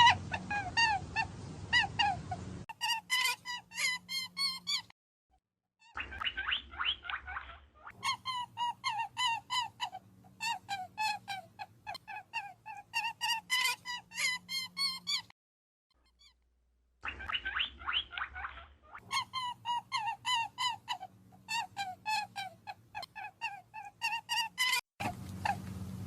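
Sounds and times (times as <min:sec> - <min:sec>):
short pitched animal calls: 0:17.0 - 0:25.7.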